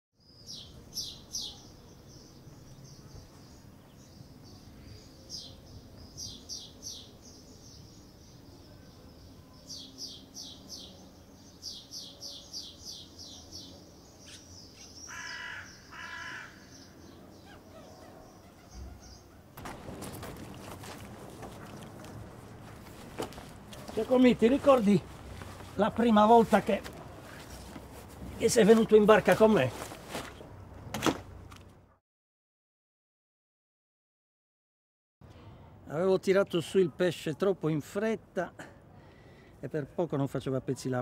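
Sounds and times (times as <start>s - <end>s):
birds chirping: 0.2s - 30.5s
faint background noise: 0.2s - 31.8s
large bird cawing: 14.3s - 19.4s.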